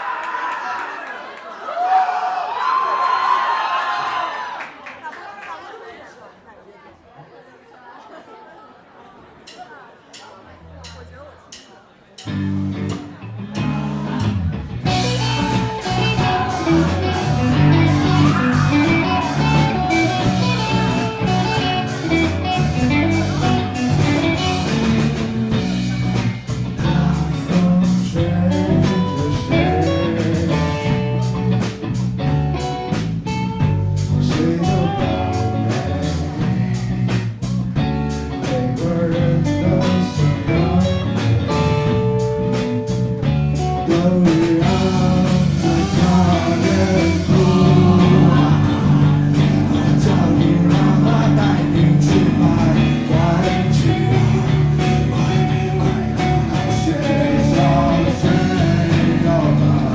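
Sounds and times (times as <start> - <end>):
live rock band playing: 12.2 - 59.9
low bass notes: 12.2 - 59.9.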